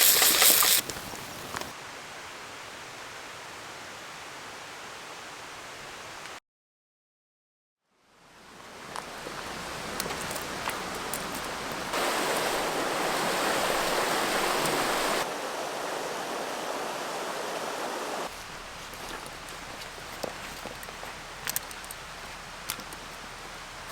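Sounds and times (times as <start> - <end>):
raindrops ticking: 0.0 - 1.7, 18.3 - 23.9
rain hissing in woodland: 0.0 - 6.4, 7.9 - 23.9.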